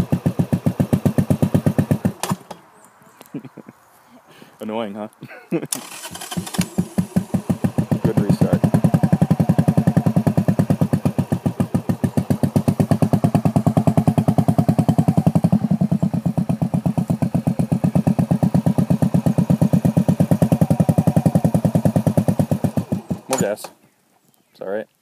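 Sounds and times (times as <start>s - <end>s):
small motorcycle engine puttering: 5.7s - 23.8s.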